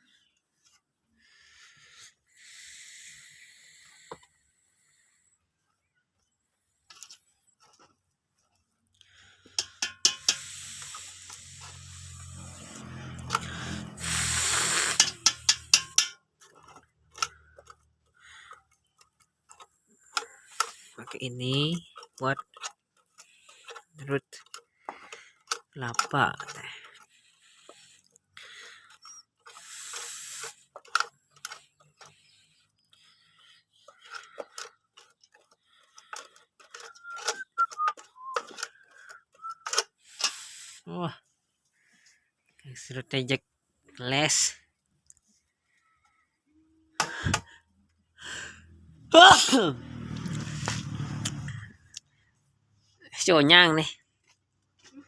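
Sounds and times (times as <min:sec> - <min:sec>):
hard objects clicking and knocking: 0:09.4 - 0:11.0, 0:14.7 - 0:21.2
sharp clicks and knocks: 0:09.5 - 0:10.5, 0:14.9 - 0:17.8
loud grinding of coconut: 0:10.0 - 0:18.7, 0:49.5 - 0:51.6
grating machine motor hum: 0:10.4 - 0:15.8, 0:49.8 - 0:51.8
short high squeaks: 0:36.7 - 0:40.8.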